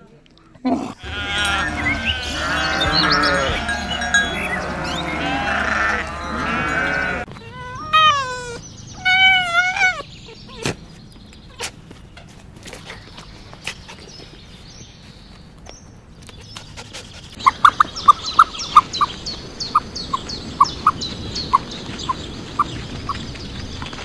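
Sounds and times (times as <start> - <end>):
goats bleating: 0.9 - 8.6
short wavering calls: 1.0 - 10.4.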